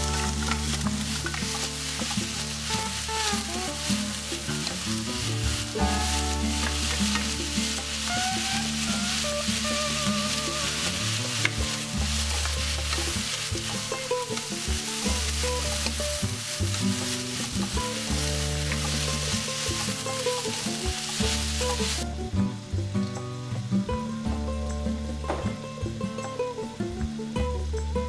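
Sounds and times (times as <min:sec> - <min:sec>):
wooden spatula stirring: 0:00.0 - 0:22.0
food sizzling in a pan: 0:00.0 - 0:28.0.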